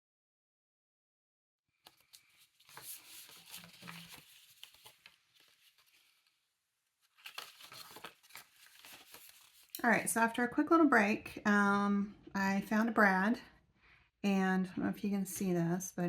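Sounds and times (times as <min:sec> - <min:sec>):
paper rustling and crinkling: 0:01.8 - 0:09.8.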